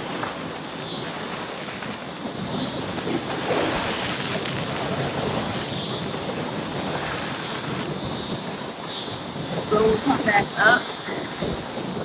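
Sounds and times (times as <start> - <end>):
rushing wind: 0.0 - 12.0.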